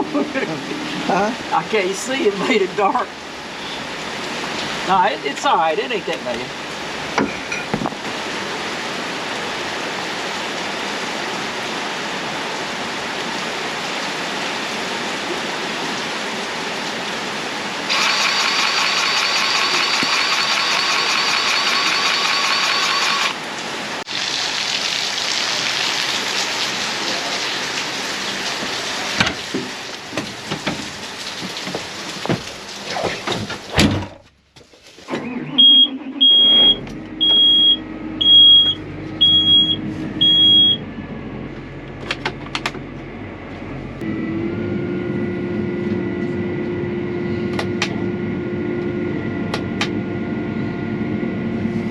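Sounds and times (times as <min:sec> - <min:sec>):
steady rain hiss: 0:00.1 - 0:07.2, 0:07.9 - 0:33.7.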